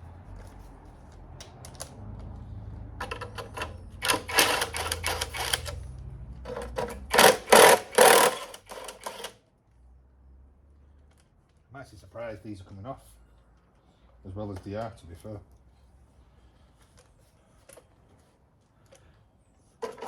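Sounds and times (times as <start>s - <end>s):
wrench clicking and rattling: 3.0s - 5.8s, 6.5s - 9.3s.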